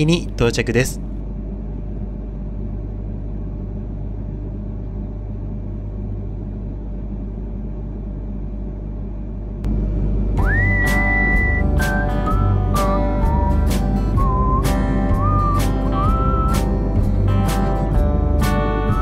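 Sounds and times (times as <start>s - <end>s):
background music with whistled melody: 10.4s - 19.0s.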